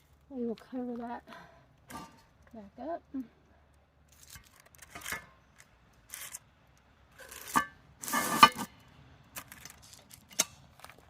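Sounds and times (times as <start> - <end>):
metal lid scraping and clanking on pot: 1.9 - 2.3, 7.2 - 8.7.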